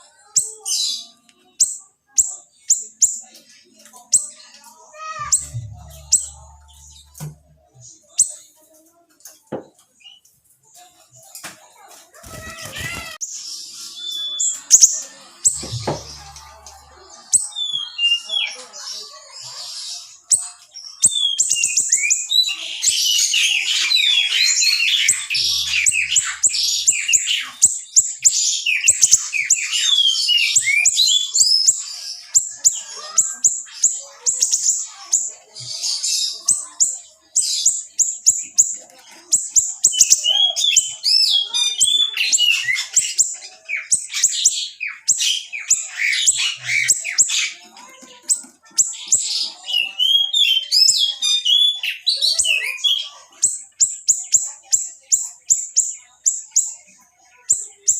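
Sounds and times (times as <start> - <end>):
songbird singing fast trills: 21.0 - 31.8.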